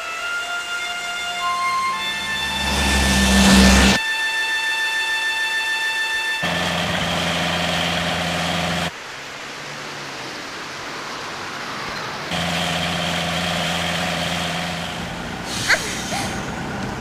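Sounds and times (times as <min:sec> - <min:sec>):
high electronic tone: 0:01.5 - 0:04.0
car engine humming: 0:01.8 - 0:04.0, 0:06.4 - 0:08.9, 0:12.3 - 0:17.0
loud rush with low rumble: 0:02.0 - 0:04.0.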